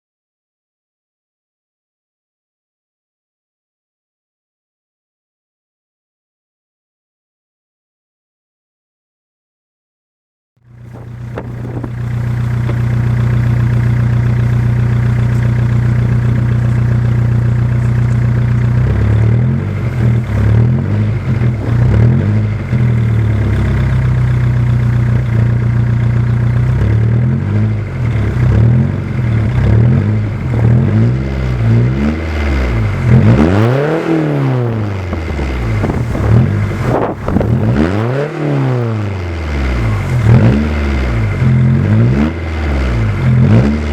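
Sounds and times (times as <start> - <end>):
diesel engine idling and revving: 10.6 - 43.9.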